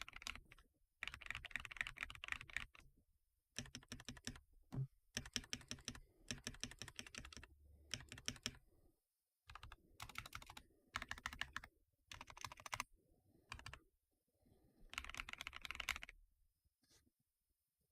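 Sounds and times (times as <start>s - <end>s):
mechanical keyboard typing: 0.0s - 2.8s, 3.6s - 4.4s, 5.2s - 8.6s, 9.5s - 12.9s, 13.5s - 13.8s, 14.9s - 16.2s.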